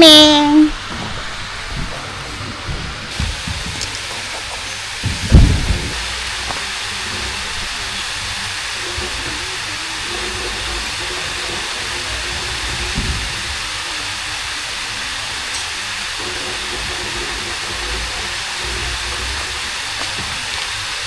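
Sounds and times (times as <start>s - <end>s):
low thump: 5.0s - 6.0s.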